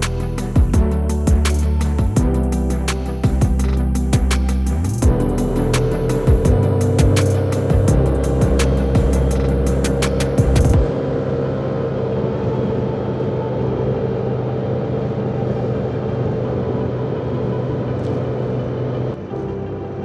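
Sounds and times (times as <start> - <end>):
scooter engine running: 0.0 - 10.9
wind and road noise: 0.0 - 20.0.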